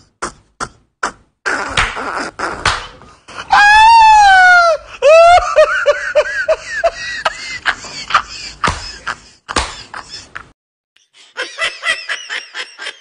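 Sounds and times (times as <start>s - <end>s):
person wailing: 1.6s - 5.7s.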